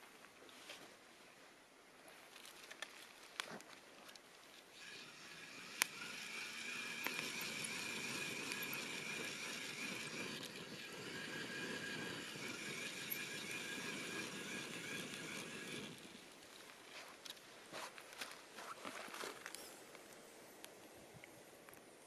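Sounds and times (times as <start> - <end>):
campfire crackle: 2.3 - 22.0
campfire wood hissing: 4.7 - 18.4.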